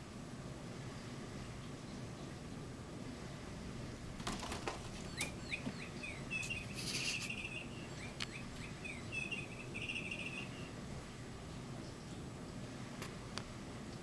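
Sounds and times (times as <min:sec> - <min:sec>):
bird chirping in high trills: 0:04.9 - 0:10.8.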